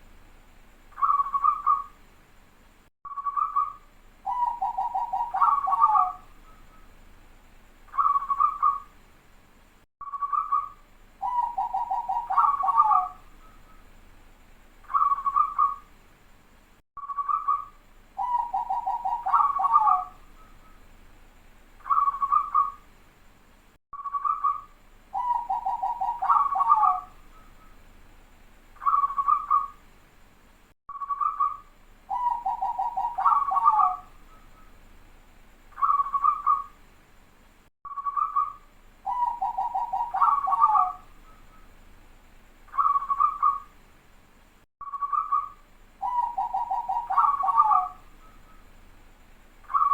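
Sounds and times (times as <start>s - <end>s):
dove cooing and trilling: 1.0s - 1.9s, 3.2s - 6.3s, 7.9s - 8.9s, 10.2s - 13.2s, 14.9s - 15.8s, 18.2s - 20.2s, 21.8s - 22.8s, 24.1s - 27.2s, 28.8s - 29.8s, 31.1s - 34.7s, 35.8s - 36.8s, 38.0s - 41.6s, 42.7s - 43.7s, 45.0s - 48.6s, 49.7s - 49.9s.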